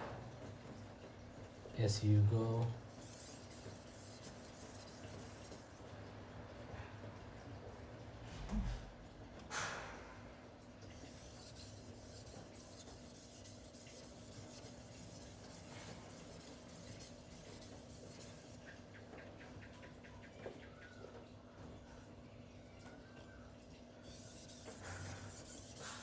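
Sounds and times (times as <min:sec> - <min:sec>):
blade rasping on whetstone: 0:03.0 - 0:05.8, 0:11.0 - 0:18.6, 0:24.0 - 0:26.0.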